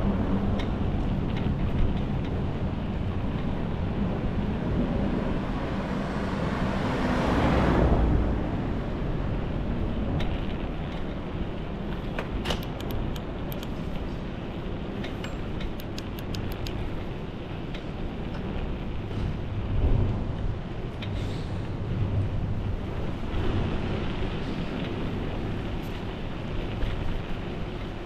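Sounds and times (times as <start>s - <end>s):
street traffic: 0.0s - 28.0s
vehicle passing close: 4.0s - 9.9s
light clicks: 12.2s - 14.0s, 15.0s - 17.0s.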